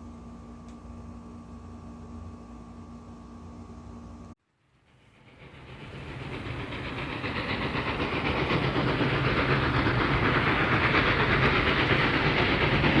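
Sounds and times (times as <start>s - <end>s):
train rumbling on rails: 4.6s - 13.0s
rail clatter: 4.9s - 13.0s.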